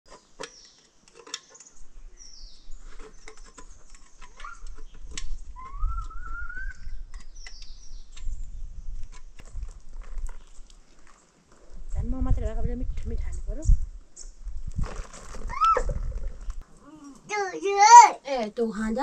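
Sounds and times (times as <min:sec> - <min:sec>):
sharp clicks and knocks: 0:00.1 - 0:01.7, 0:03.0 - 0:08.4
birds chirping: 0:00.1 - 0:09.5
wavering rising bird call: 0:05.6 - 0:07.0.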